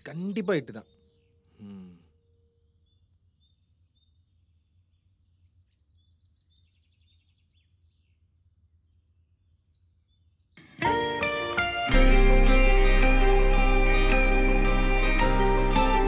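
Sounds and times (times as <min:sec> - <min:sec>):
bird trill: 0:00.0 - 0:10.6
birds faintly chirping: 0:00.0 - 0:10.6.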